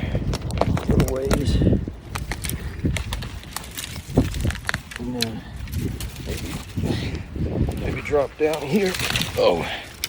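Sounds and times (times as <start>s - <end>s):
twigs snapping: 0.2s - 6.8s, 7.6s - 10.0s.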